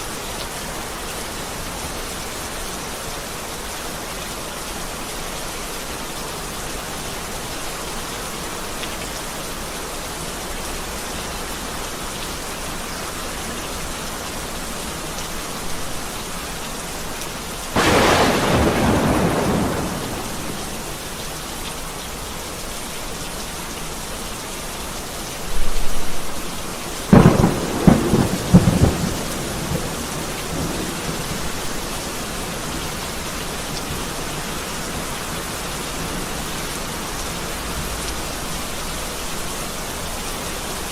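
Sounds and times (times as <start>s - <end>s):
heavy rain falling: 0.0s - 40.9s
thunder cracking and rumbling: 17.8s - 21.0s, 27.1s - 31.7s.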